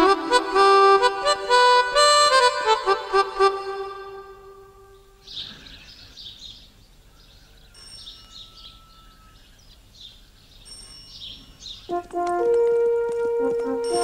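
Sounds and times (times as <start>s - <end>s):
harmonica note: 0.0s - 5.0s, 11.9s - 14.0s
small birds chirping: 4.1s - 12.0s.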